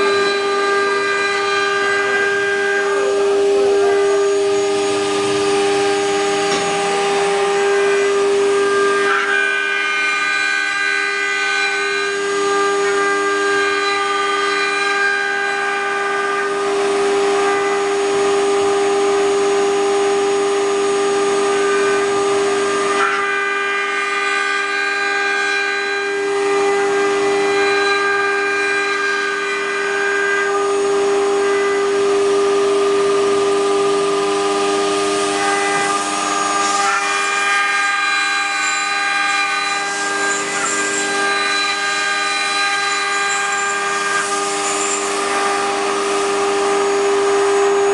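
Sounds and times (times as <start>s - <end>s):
router spindle whining: 0.0s - 47.9s
cutter hissing in wood: 34.6s - 47.2s.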